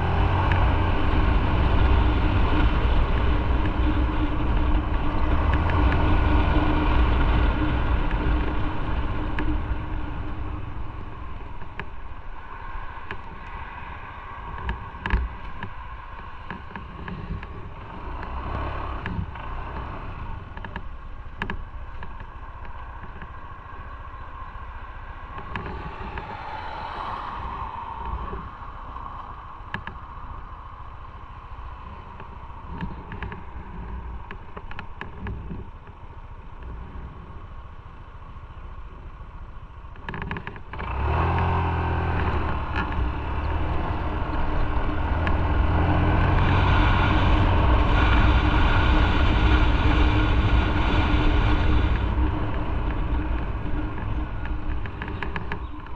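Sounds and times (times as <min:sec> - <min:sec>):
motorcycle engine accelerating: 0:00.0 - 0:12.1, 0:31.5 - 0:55.9
wind noise: 0:00.0 - 0:38.2, 0:39.9 - 0:55.9.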